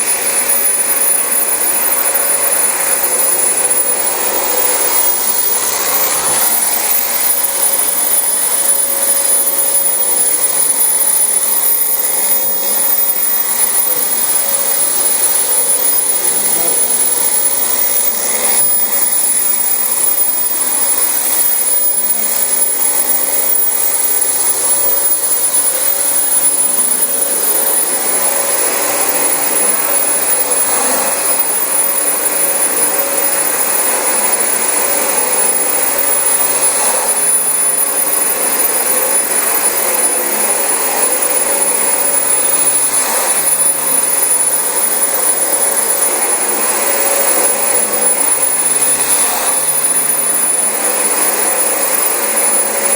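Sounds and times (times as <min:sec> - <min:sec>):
vacuum cleaner on carpet: 0:00.0 - 0:52.9.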